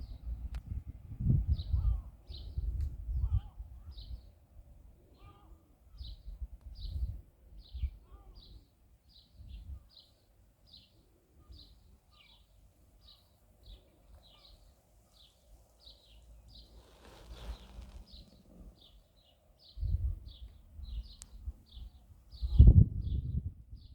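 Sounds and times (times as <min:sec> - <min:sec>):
low rumble: 0:00.0 - 0:01.9
brief hiss: 0:16.5 - 0:18.5.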